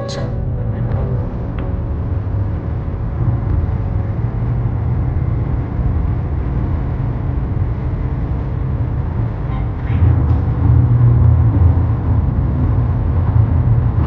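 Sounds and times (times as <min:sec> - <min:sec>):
low rumbling noise: 0:00.0 - 0:14.0.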